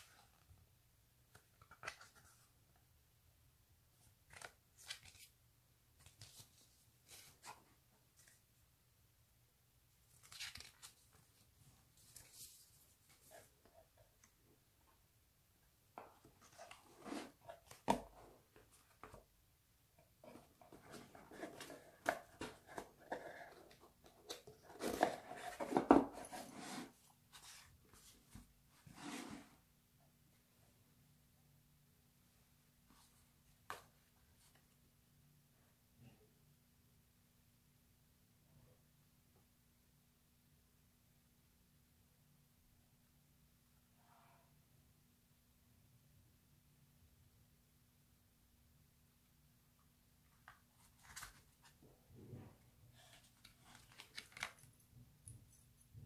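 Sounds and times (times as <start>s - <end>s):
packaging rustling and scraping: 20.3s - 27.7s, 53.0s - 54.7s.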